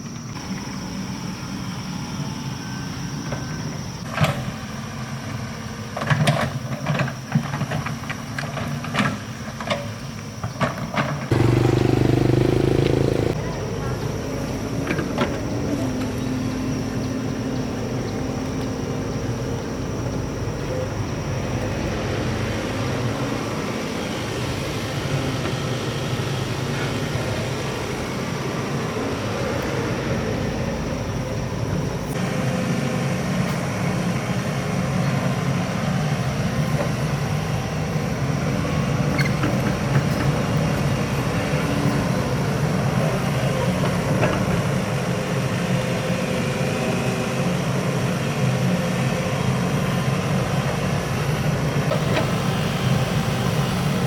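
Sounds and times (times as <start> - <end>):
diesel engine running: 11.3 - 14.6, 51.2 - 54.0.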